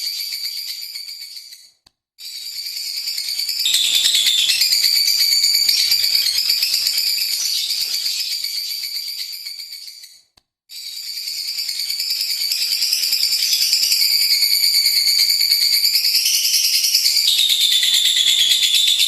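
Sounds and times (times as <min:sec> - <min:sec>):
bird chattering trill: 0:03.7 - 0:08.4, 0:16.2 - 0:19.0.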